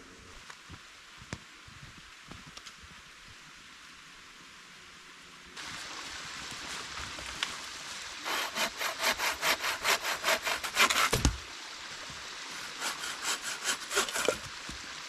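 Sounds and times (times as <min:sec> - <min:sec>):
running water hiss: 0:00.0 - 0:15.0
hand saw cutting wood: 0:08.2 - 0:11.4, 0:12.5 - 0:14.5.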